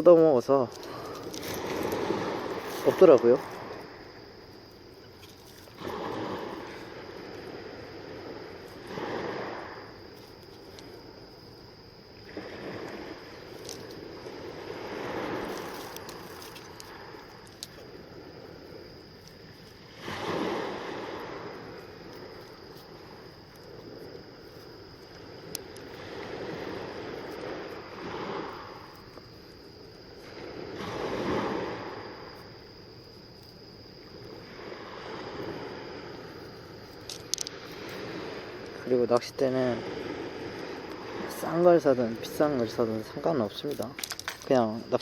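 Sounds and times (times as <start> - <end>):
sea waves washing in: 0.0 - 45.0.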